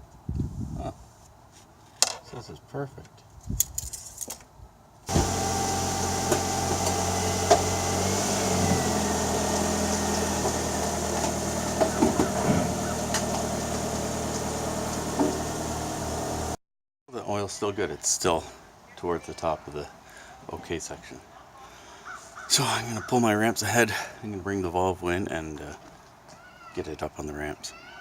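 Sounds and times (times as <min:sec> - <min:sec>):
car engine idling: 0:05.1 - 0:16.6.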